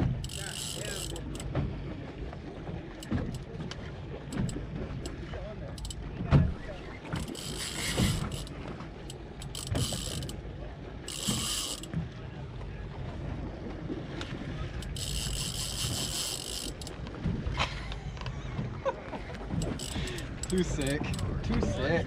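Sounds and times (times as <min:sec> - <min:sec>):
fishing reel buzzing: 0:00.1 - 0:01.4, 0:07.2 - 0:10.4, 0:11.0 - 0:11.9, 0:14.8 - 0:16.9, 0:19.6 - 0:21.2.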